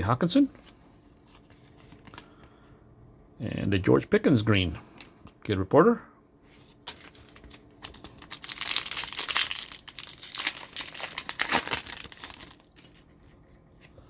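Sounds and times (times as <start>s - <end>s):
plastic wrapper tearing and crinkling: 6.9s - 13.6s.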